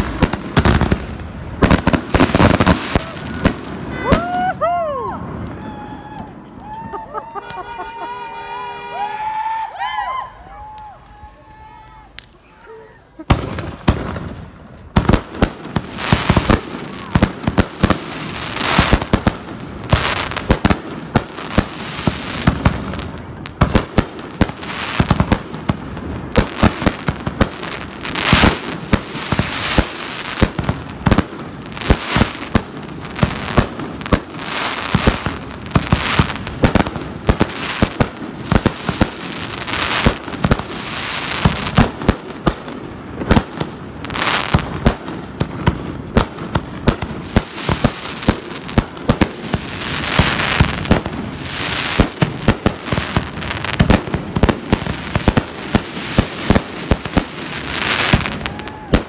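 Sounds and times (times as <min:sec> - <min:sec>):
fireworks hiss and crackle: 0:00.0 - 0:08.4, 0:10.5 - 0:59.0
fireworks bursting: 0:00.0 - 0:09.1, 0:13.2 - 0:59.0.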